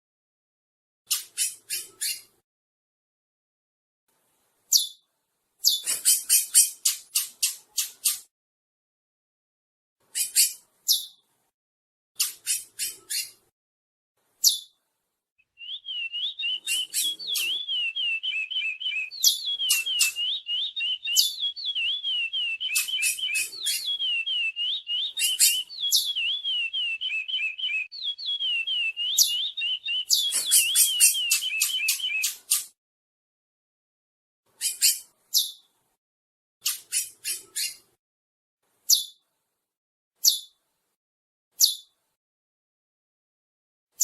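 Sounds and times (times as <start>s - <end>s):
finch warbling whistles: 15.6s - 32.4s
sharp high bird chips: 16.2s - 27.9s, 28.5s - 32.7s.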